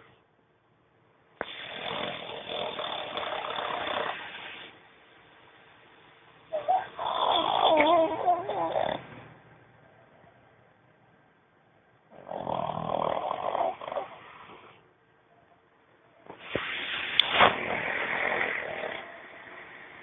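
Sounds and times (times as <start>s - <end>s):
dog snoring: 1.4s - 4.7s, 6.5s - 9.2s, 12.1s - 14.8s, 16.6s - 20.0s.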